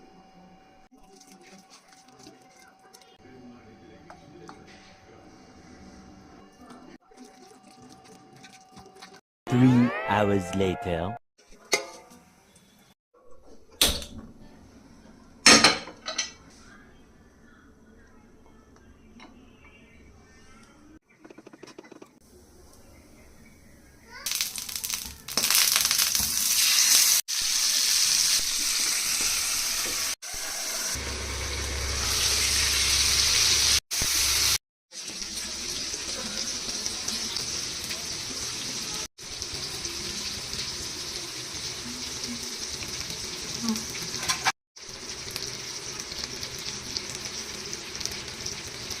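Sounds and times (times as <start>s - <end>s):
chicken sizzling in oil: 24.1s - 49.0s.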